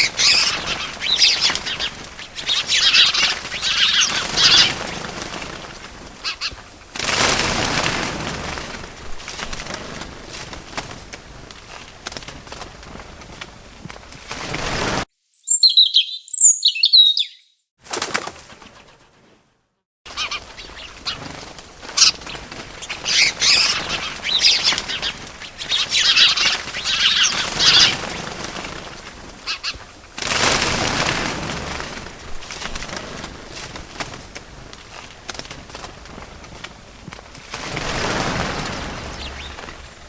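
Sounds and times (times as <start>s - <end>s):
small birds chirping: 0.0s - 6.8s, 15.2s - 17.7s, 20.1s - 29.9s, 37.9s - 40.0s
wings flapping: 0.0s - 15.1s, 17.8s - 19.5s, 20.1s - 40.0s.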